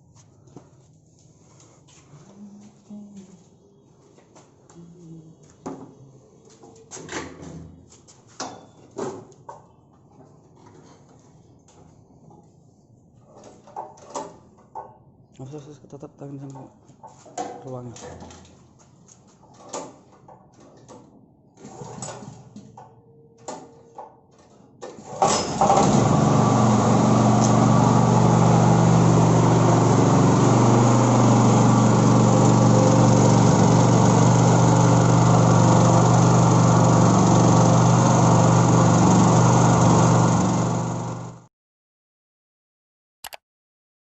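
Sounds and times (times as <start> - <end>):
generator engine running: 25.5 - 41.4.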